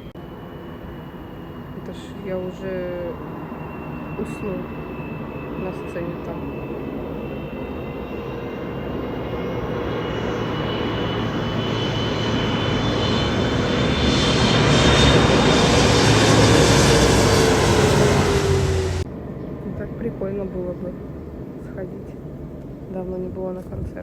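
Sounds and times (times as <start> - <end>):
engine whine: 0.0 - 22.8
large engine passing: 8.5 - 19.1.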